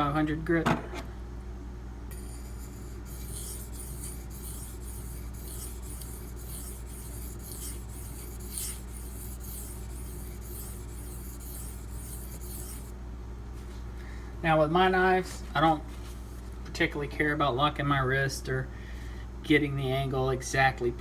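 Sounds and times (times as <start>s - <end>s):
knife scraping on whetstone: 2.1s - 12.9s.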